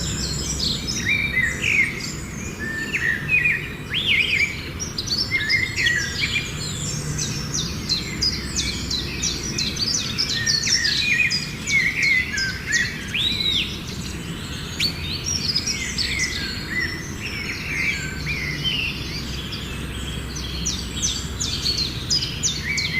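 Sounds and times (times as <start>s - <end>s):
small birds chirping: 0.0s - 22.9s.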